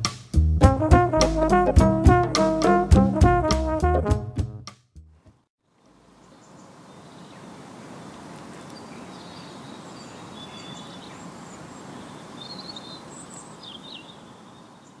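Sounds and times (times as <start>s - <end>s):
small birds chirping: 5.8s - 15.0s.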